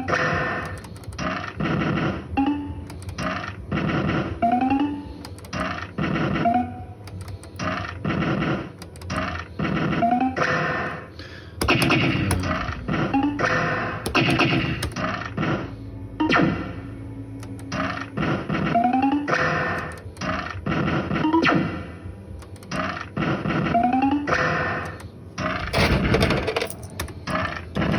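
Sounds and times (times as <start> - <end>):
fruit machine electronic music: 11.6 - 15.4.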